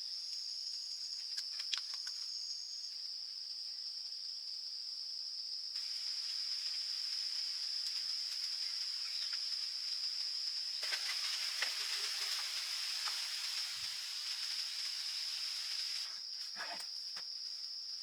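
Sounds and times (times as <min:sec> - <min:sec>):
faint clicks: 0:01.3 - 0:02.3
hiss: 0:05.8 - 0:16.8.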